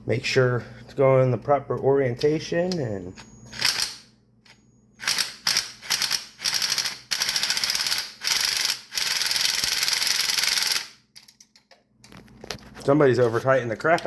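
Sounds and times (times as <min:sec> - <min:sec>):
ratchet wrench clicking: 0:05.0 - 0:11.3.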